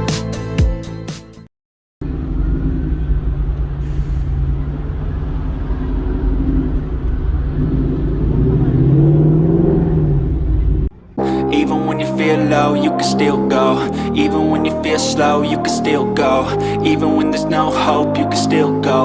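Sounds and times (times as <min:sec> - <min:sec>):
car engine running at low revs: 0:02.0 - 0:12.7
brief hiss: 0:03.8 - 0:04.7.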